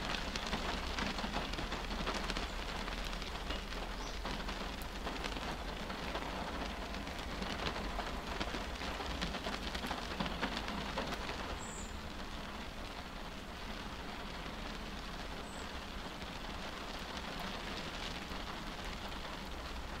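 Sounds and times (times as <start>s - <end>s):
rain on windshield: 0.0s - 20.0s.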